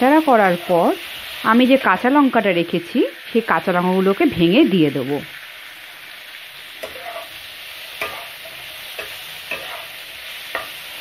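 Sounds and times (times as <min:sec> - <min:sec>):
beans sizzling in oil: 0:00.0 - 0:11.0
spatula scraping a pan: 0:06.6 - 0:11.0.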